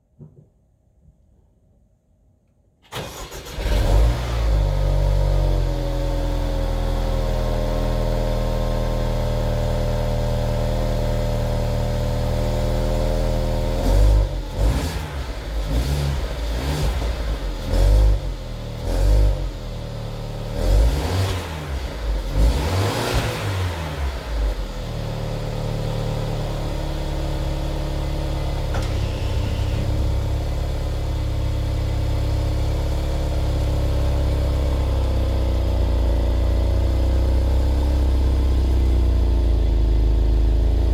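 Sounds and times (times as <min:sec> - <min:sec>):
car engine revving: 0:03.0 - 0:08.2, 0:13.2 - 0:40.9
car engine idling: 0:24.0 - 0:40.9.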